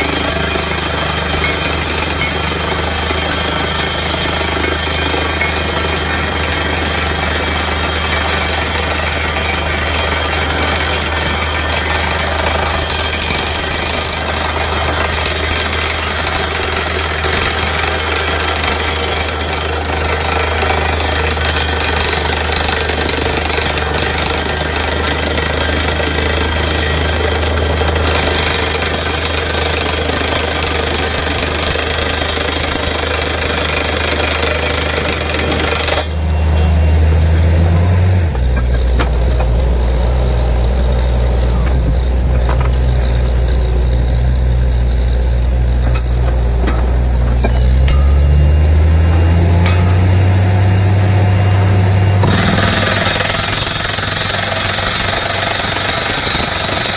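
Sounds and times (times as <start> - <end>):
air hammer pounding: 0.0 - 36.1, 52.2 - 56.9
drilling rig engine drone: 0.0 - 56.9.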